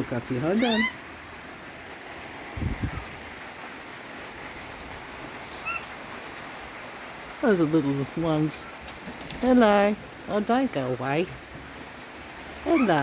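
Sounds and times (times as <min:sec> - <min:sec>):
heavy rain hissing: 0:00.0 - 0:13.0.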